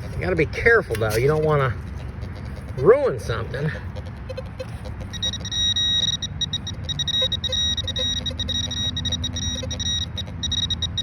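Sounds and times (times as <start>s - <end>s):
metal detector pulsing tone: 4.3s - 11.0s.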